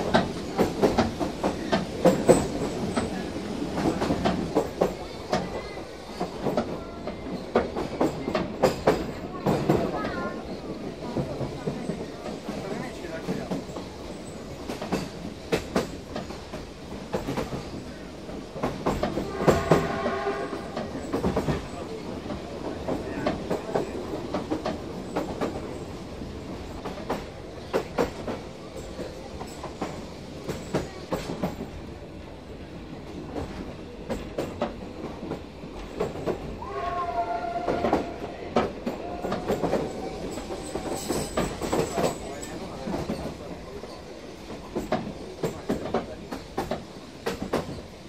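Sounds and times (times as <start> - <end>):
train rumbling: 0.0 - 48.0
train hooter: 19.0 - 21.6, 36.5 - 41.8.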